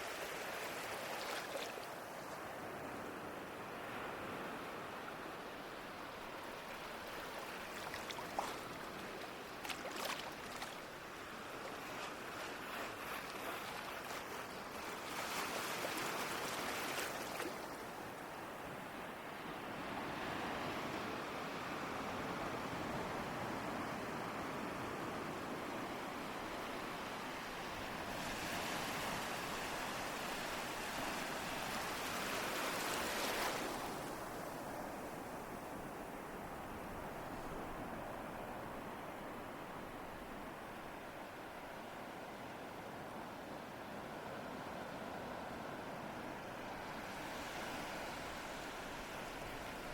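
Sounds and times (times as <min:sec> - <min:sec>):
water splashes and crackles: 0:00.0 - 0:02.5, 0:06.4 - 0:18.2, 0:28.0 - 0:35.0
ocean waves on shore: 0:00.0 - 0:49.9
ocean waves washing in: 0:43.9 - 0:49.9.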